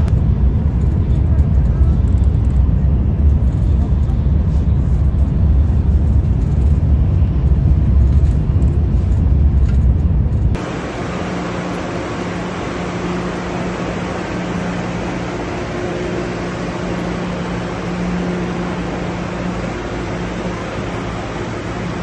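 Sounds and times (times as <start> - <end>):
moving vehicle rumble: 0.0 - 22.0
steady low hum: 0.0 - 22.0.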